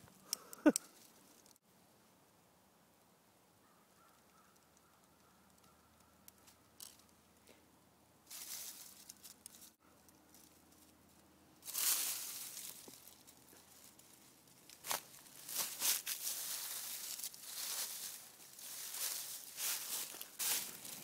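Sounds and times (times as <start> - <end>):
rustling and crunching: 8.3 - 21.0.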